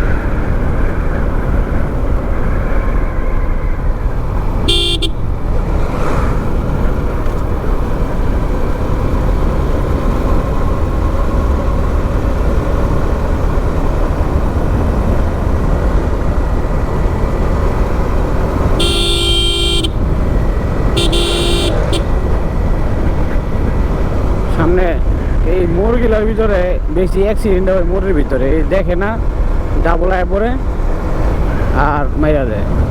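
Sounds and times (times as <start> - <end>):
motorbike engine rumble: 0.0 - 32.9
wind: 0.0 - 32.9
vehicle horn: 4.3 - 5.5, 18.7 - 22.4.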